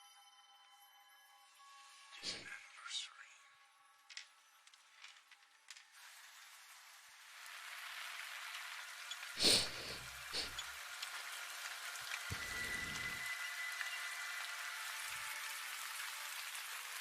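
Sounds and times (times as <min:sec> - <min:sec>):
steady rain: 0:05.7 - 0:17.0.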